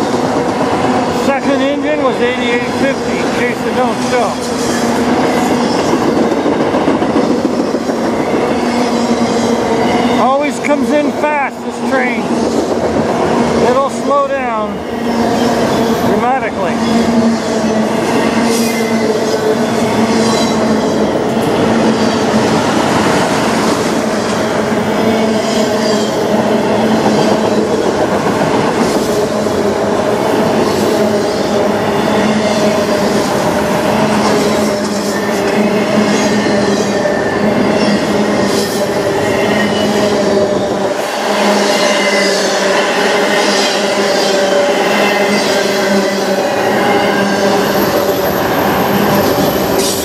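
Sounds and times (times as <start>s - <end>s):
steel wheels rumbling on rail: 0.0s - 50.0s
metallic squeal: 41.0s - 50.0s.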